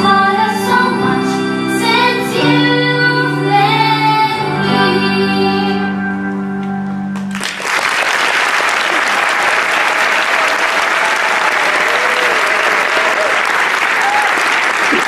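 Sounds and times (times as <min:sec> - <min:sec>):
crowd applause: 0:07.2 - 0:15.0
faint cheers: 0:08.6 - 0:15.0.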